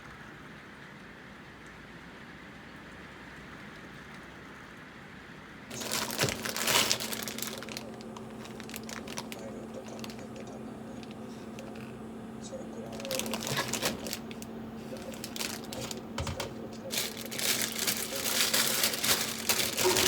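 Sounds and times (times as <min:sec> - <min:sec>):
crinkling handling noise: 0:05.7 - 0:20.0
low steady hum: 0:05.7 - 0:20.0.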